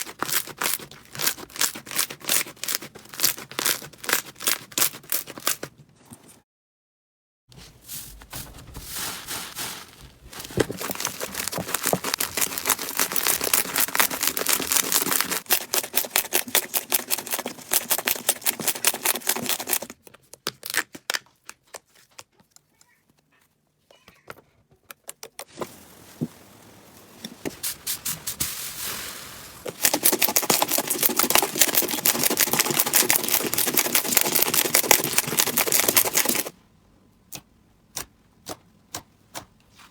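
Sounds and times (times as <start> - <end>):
slime crackling and popping: 10.8 - 19.8.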